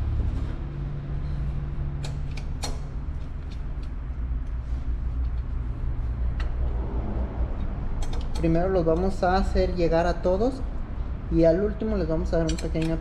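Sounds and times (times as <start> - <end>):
metallic clicks of tools and bolts: 2.0 - 4.0, 7.5 - 9.4, 12.2 - 13.0
low rumble: 4.0 - 11.4.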